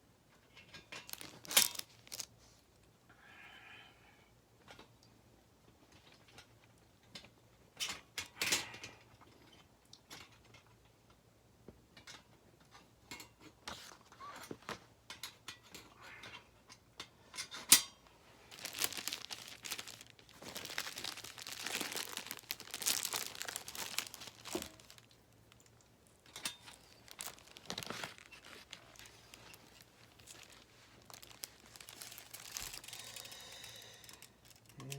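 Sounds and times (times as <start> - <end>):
crinkling: 0.4 - 2.9, 18.0 - 34.9.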